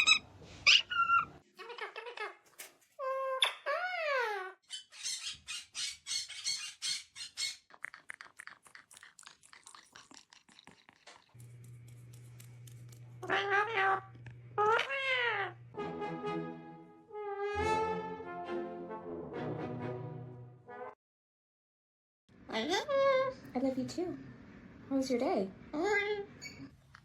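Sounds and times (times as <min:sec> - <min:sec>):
parrot squawking and calling: 0:00.0 - 0:07.8, 0:14.6 - 0:15.6.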